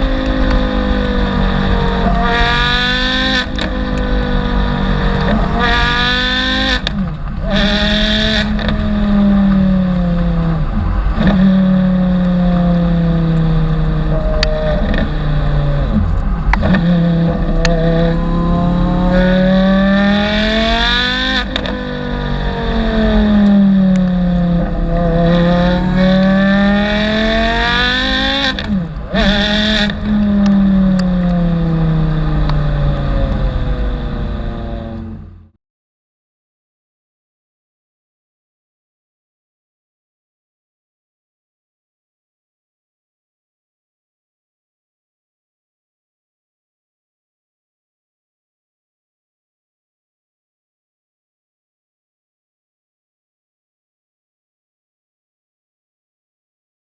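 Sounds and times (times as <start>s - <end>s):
loud sports car engine revving: 0.0s - 35.5s.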